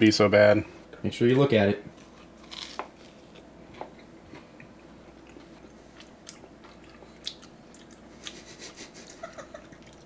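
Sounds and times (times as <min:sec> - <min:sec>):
person chewing crunchy food: 0:02.0 - 0:08.6.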